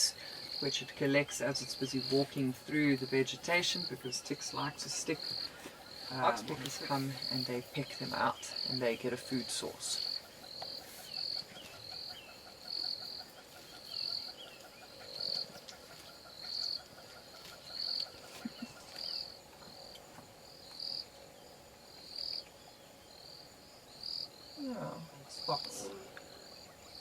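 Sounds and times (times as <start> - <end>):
insect faint steady trill: 0.0 - 27.0
insect high chirps: 0.0 - 27.0.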